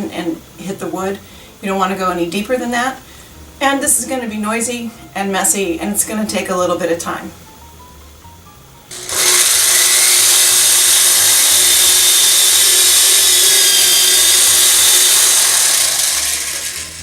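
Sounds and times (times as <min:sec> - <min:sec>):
power drill boring into rubber: 0:08.9 - 0:17.0.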